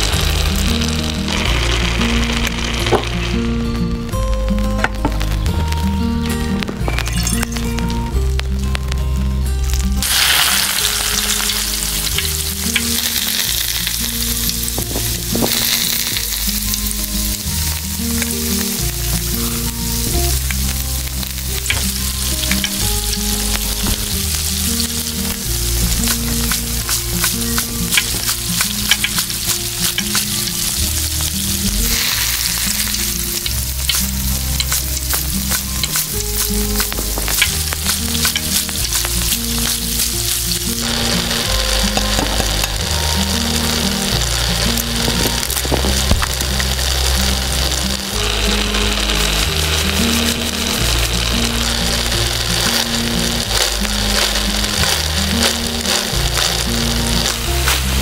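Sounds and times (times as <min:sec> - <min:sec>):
food sizzling in frying pan: 0:00.0 - 0:58.0
soft background music: 0:00.0 - 0:58.0
stirring clicks and scrapes: 0:23.5 - 0:41.0, 0:51.8 - 0:57.8.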